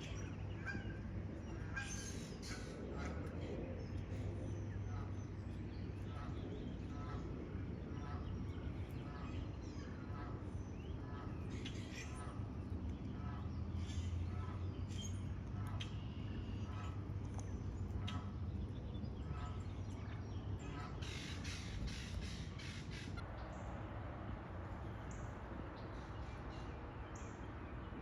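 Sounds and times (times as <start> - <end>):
birds calling: 0.0 - 23.6
steady low hum: 0.0 - 28.0.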